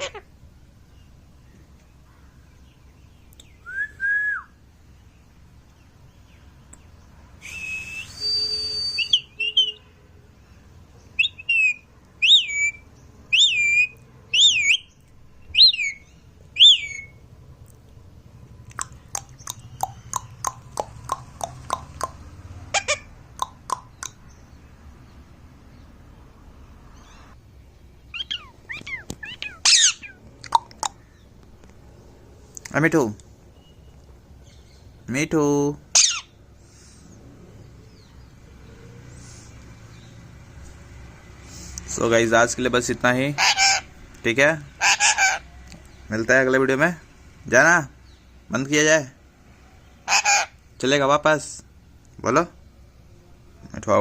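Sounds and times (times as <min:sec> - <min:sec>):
harsh parrot call: 0:00.0 - 0:00.3, 0:11.2 - 0:14.9, 0:15.5 - 0:17.2, 0:18.7 - 0:24.2, 0:28.1 - 0:31.2, 0:35.9 - 0:36.4, 0:43.3 - 0:44.0, 0:44.7 - 0:45.5, 0:50.0 - 0:50.6
parrot chirps: 0:00.0 - 0:00.3, 0:08.1 - 0:09.9, 0:11.2 - 0:17.2, 0:18.7 - 0:24.4, 0:28.1 - 0:31.2, 0:35.9 - 0:36.4, 0:43.4 - 0:43.9, 0:44.8 - 0:45.5, 0:50.0 - 0:50.6
parrot whistling: 0:07.4 - 0:09.8, 0:11.2 - 0:14.9, 0:15.5 - 0:17.2, 0:28.1 - 0:30.2.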